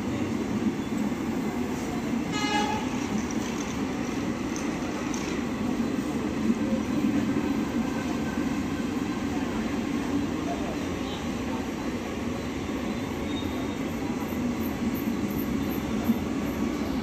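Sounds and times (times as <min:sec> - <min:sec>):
train wheels rumbling on rails: 0:00.0 - 0:17.0
train horn toot: 0:02.3 - 0:03.0.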